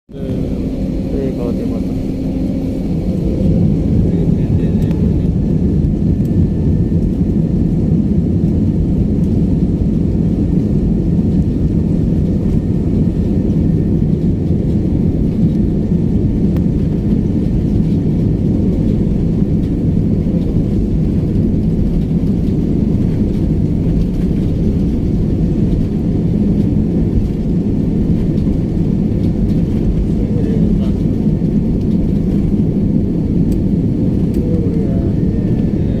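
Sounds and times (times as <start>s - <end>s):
jet engines rumbling in cabin: 0.1s - 36.0s.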